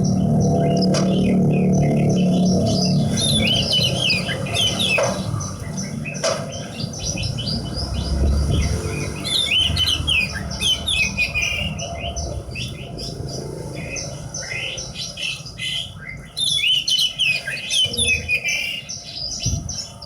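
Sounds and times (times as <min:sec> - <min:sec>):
low rumble: 0:00.0 - 0:06.2, 0:06.9 - 0:15.6
lark singing chirps and trills: 0:00.0 - 0:20.0
sharp knocks: 0:00.8 - 0:01.5, 0:04.8 - 0:05.4, 0:06.2 - 0:06.7.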